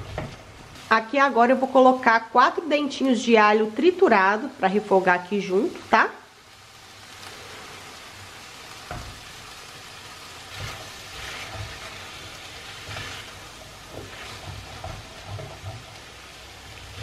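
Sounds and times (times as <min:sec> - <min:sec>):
vegetables sizzling in a frying pan: 0:00.0 - 0:17.0
spatula scraping vegetables: 0:07.1 - 0:17.0.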